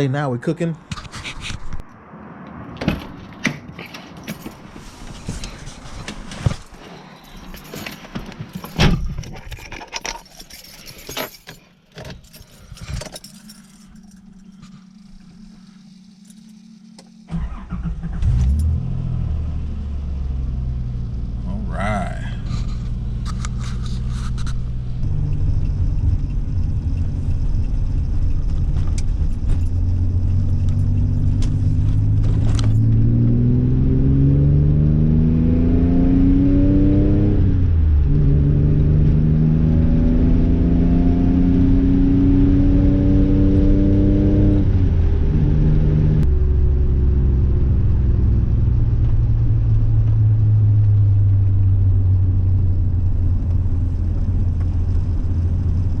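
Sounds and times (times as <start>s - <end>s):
car engine revving: 14.3s - 50.6s.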